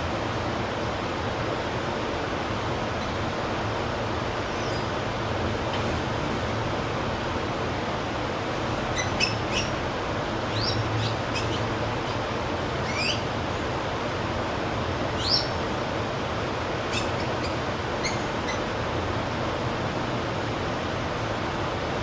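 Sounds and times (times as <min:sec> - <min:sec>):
birds chirping: 0:08.8 - 0:09.8, 0:10.4 - 0:13.4, 0:15.1 - 0:15.8, 0:16.8 - 0:18.8.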